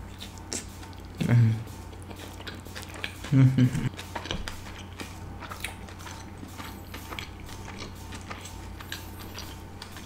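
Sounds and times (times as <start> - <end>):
room fan hum: 0.0 - 10.0
wet mouth chewing clicks: 0.0 - 10.0.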